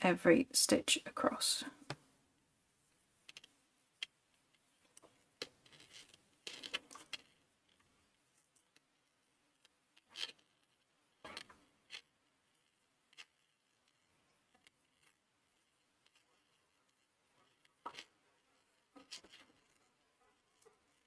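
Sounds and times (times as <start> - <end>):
crochet hook clicking and rustling: 3.2 - 20.0.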